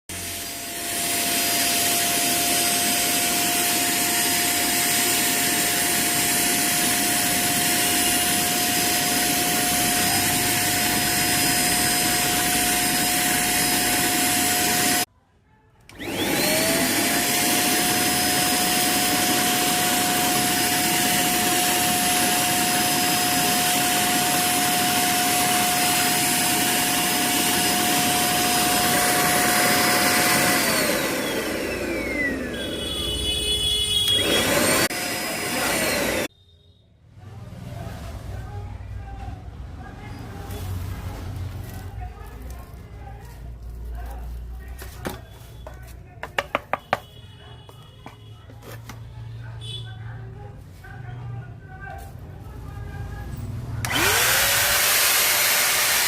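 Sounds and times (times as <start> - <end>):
vacuum cleaner motor whine: 0.1 - 15.1, 15.9 - 36.3, 53.8 - 56.0.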